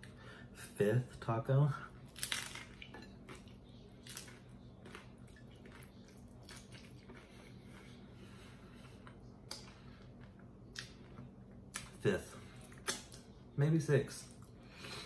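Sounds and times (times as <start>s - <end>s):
low steady hum: 0.0s - 15.0s
chewing and wet mouth sounds: 2.1s - 13.4s.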